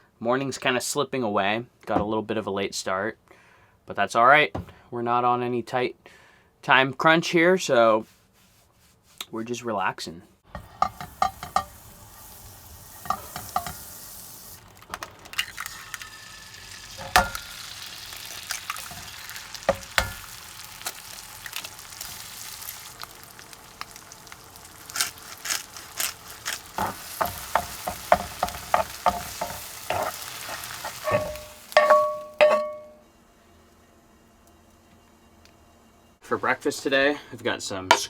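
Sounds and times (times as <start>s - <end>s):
eggs sizzling in a frying pan: 10.5s - 32.5s
utensil tapping cookware: 10.6s - 11.8s, 13.0s - 13.8s, 16.9s - 17.6s, 18.9s - 20.3s, 26.8s - 30.2s, 30.8s - 33.0s.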